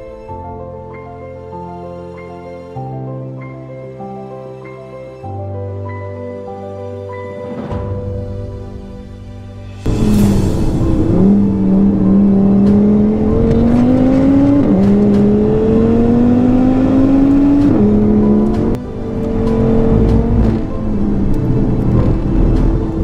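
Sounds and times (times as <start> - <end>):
car engine accelerating hard: 9.9 - 23.0.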